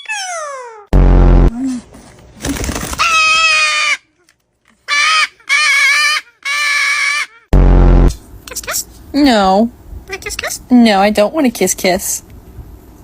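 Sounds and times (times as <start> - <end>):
parrot squawking: 4.9 - 7.5.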